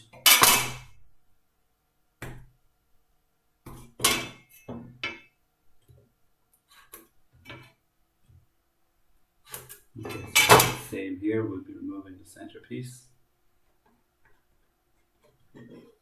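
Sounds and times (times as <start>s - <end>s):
metal tools clinking on wood: 9.5s - 10.9s.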